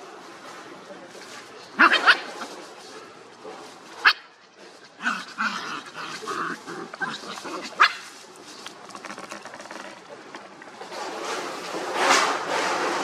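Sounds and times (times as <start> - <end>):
small dogs barking: 1.8 - 2.5, 4.0 - 4.3, 5.0 - 8.1.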